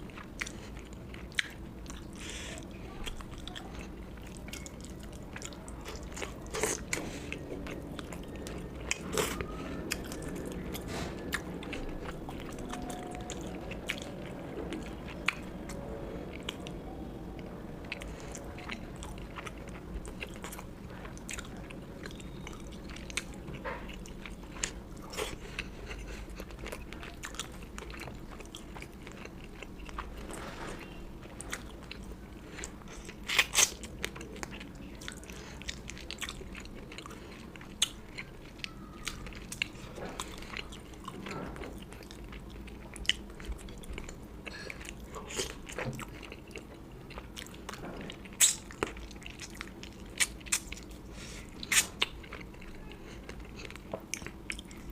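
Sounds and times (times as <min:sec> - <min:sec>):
close chewing and biting: 0:00.0 - 0:16.7, 0:17.8 - 0:54.9
food crunches: 0:31.6 - 0:34.7, 0:37.6 - 0:54.9.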